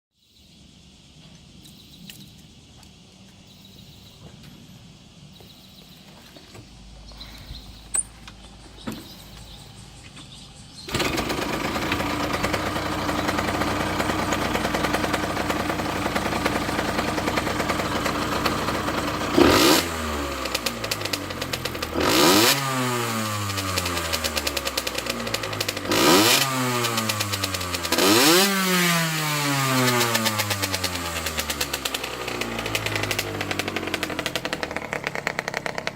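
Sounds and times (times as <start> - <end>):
two-stroke engine idling and revving: 10.8 - 35.9.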